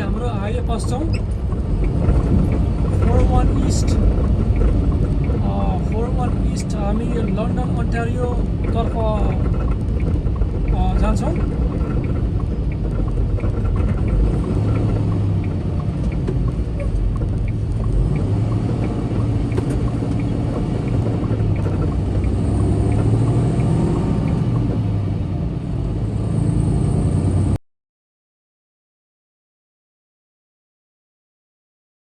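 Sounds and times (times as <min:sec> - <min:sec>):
light regular ticking: 0:00.0 - 0:25.2
road noise: 0:00.0 - 0:27.6
truck diesel engine rumbling: 0:00.0 - 0:27.6.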